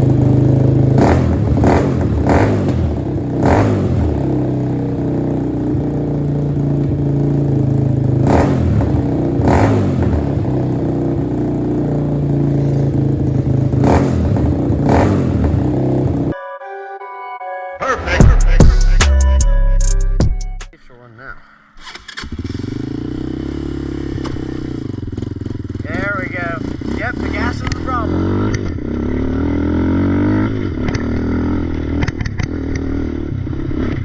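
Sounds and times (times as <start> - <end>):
small motorbike engine: 0.0 - 16.4, 21.8 - 34.0
music: 16.3 - 20.8.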